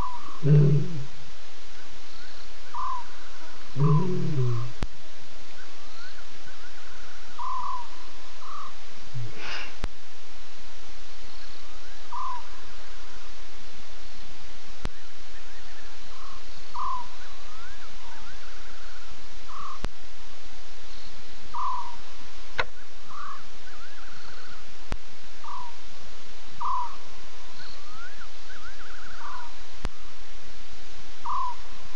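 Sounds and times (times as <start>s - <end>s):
steady hiss: 0.0s - 31.9s
bird calls with trill: 2.2s - 4.8s, 5.8s - 8.8s, 15.5s - 19.8s, 21.0s - 22.0s, 31.2s - 31.7s.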